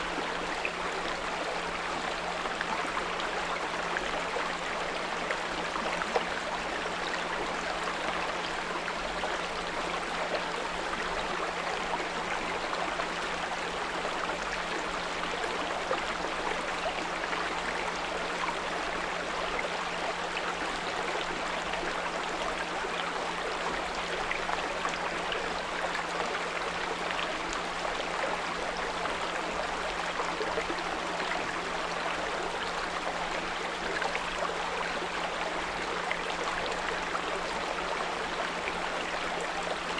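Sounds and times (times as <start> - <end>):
brook flowing over stones: 0.0 - 39.9.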